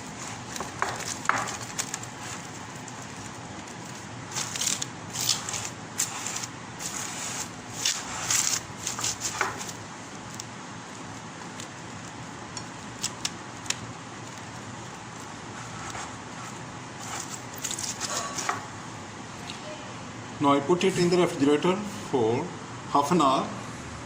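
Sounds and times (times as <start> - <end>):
cling film crinkling: 0.0 - 18.7.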